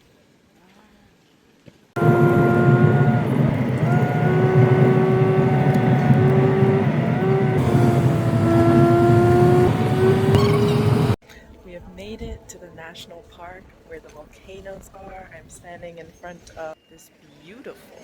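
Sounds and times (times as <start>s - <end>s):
car engine rumble with whine: 2.0s - 11.2s.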